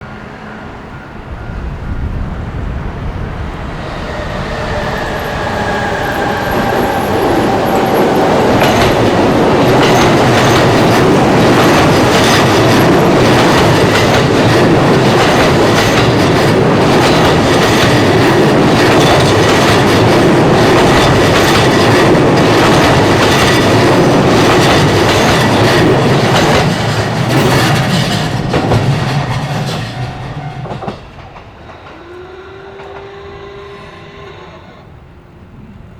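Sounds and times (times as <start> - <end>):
train wheels clattering over rails: 3.8 - 32.2.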